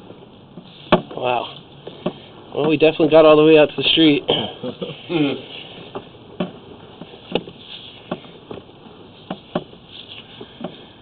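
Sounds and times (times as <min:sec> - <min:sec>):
faint steady hiss: 0:00.0 - 0:11.0
sharp knocks and clicks: 0:01.8 - 0:02.8, 0:05.9 - 0:09.8.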